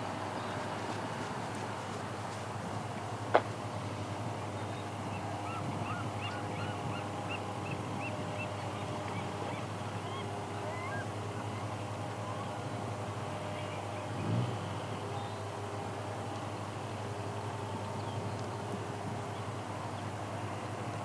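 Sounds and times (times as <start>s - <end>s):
bird calling: 4.7s - 12.6s.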